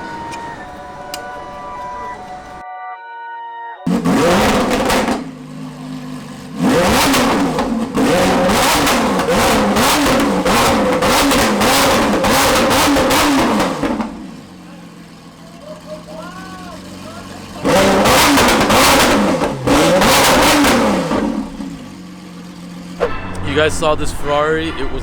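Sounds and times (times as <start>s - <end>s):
engine starting with flare: 0.0s - 2.6s
sports car engine idling: 0.0s - 2.6s, 3.9s - 25.0s
sports car engine revving: 0.0s - 2.6s, 3.9s - 25.0s.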